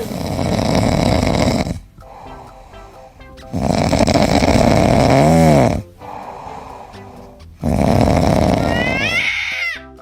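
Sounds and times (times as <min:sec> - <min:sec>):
loud snoring: 0:00.0 - 0:01.9, 0:03.5 - 0:09.2
faint background music: 0:00.0 - 0:10.0.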